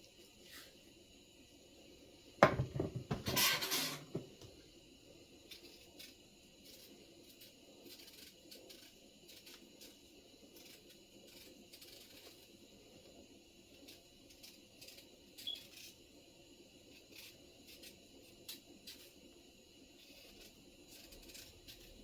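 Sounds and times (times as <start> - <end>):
pots and utensils clattering: 2.4 - 4.5.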